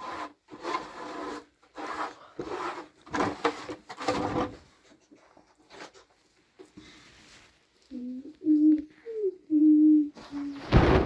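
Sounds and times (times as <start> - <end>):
rubbing scraping strokes: 0.0 - 4.6.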